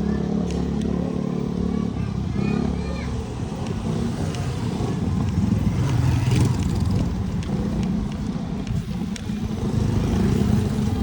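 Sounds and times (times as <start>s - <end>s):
road rumble: 0.0s - 11.0s
wind buffeting microphone: 3.1s - 11.0s.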